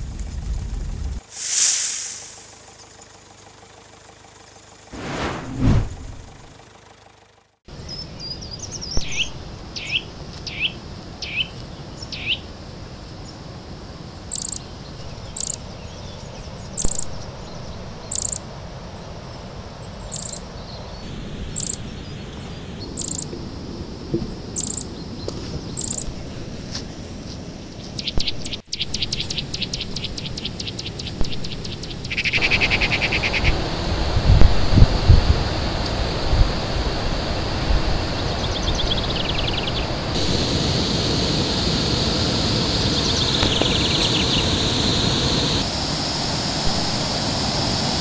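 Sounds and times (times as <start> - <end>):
wild birds calling: 14.2 - 18.4, 27.7 - 33.8, 38.1 - 45.6.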